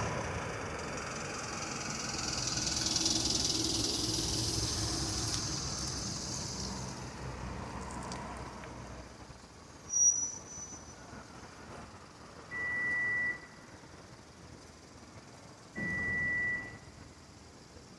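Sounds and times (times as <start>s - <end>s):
bus engine running: 0.0s - 9.9s
loud hiss: 1.6s - 7.6s.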